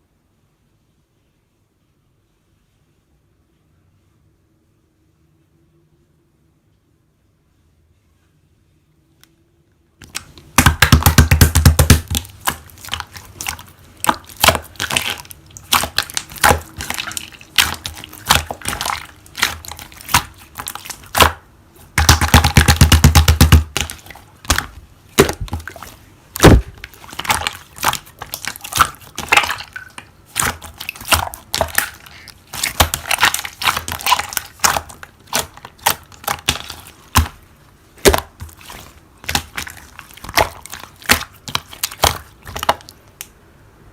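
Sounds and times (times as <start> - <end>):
slime squished by hand: 10.0 - 43.3.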